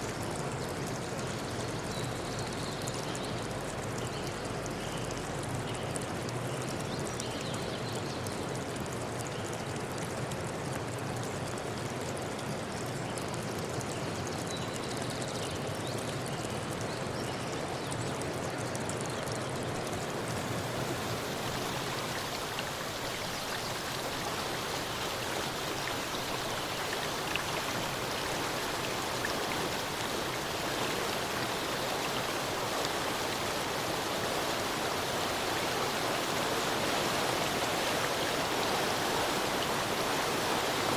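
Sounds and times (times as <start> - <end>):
stream water rushing: 19.6 - 40.9.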